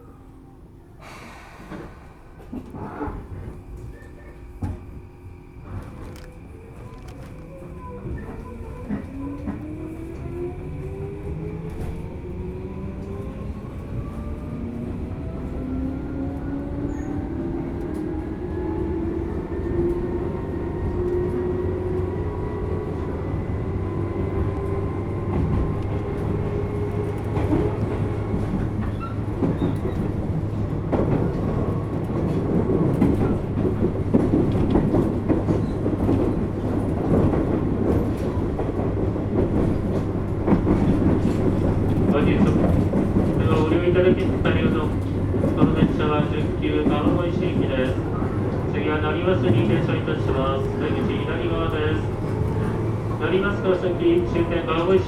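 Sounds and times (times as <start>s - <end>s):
rail joint clicks: 1.0s - 12.4s, 13.0s - 55.0s
wheel-on-rail rumble: 19.0s - 55.0s.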